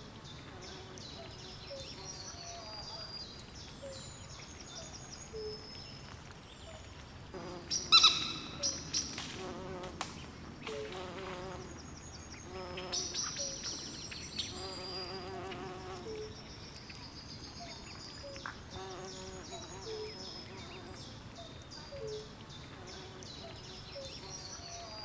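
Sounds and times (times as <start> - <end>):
steady low hiss: 0.0 - 25.0
high chirping calls: 7.7 - 9.2.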